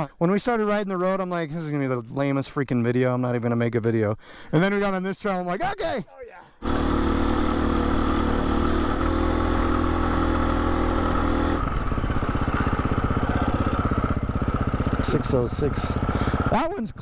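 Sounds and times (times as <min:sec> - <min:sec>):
dirt bike engine running: 0:06.6 - 0:17.0.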